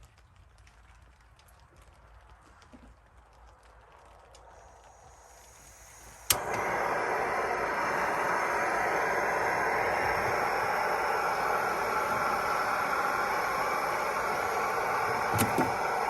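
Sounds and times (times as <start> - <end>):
gas burner hissing: 4.4 - 16.0
stove igniter click: 5.6 - 16.0.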